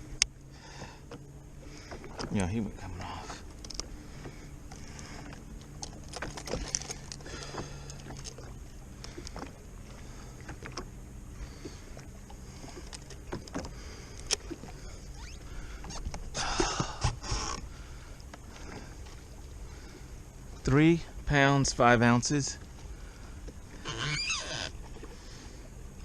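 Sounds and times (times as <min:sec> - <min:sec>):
fishing gear clicks and rattles: 0:01.9 - 0:09.6.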